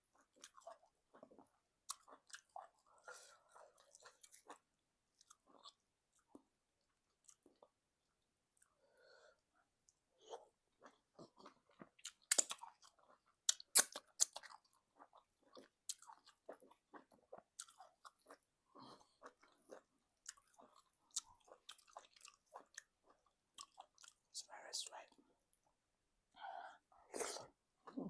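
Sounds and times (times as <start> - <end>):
chewing: 0.1 - 7.8, 9.9 - 24.2
wet mouth clicks: 13.5 - 14.5.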